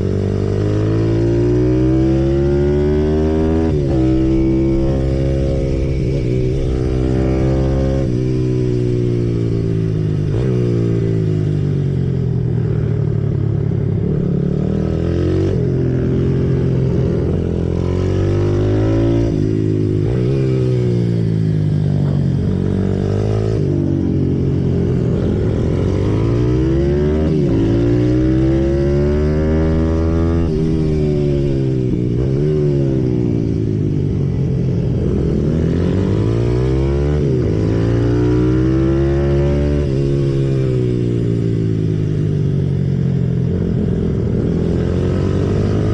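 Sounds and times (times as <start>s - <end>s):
motorbike engine revving: 0.0s - 11.8s, 14.0s - 33.8s.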